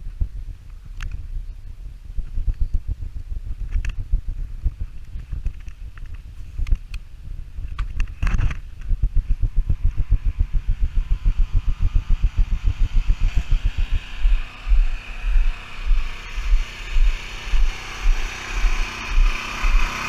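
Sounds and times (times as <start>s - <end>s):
low rhythmic pulsing: 0.0s - 20.0s
sharp clicks: 2.3s - 14.4s
gas engine running: 8.2s - 20.0s.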